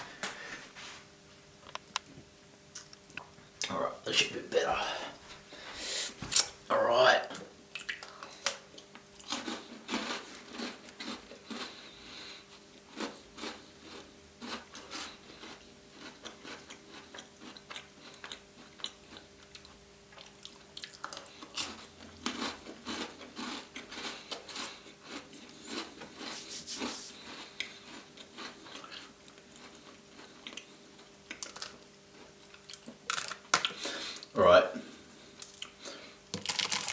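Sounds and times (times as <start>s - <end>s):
close chewing: 7.8s - 34.0s
biscuit crunching: 31.3s - 33.9s, 35.4s - 36.9s.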